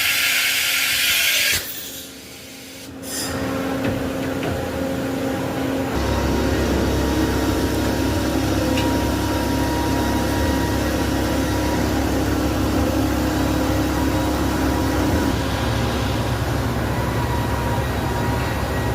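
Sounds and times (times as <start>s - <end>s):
industrial machinery hum: 1.6s - 18.9s.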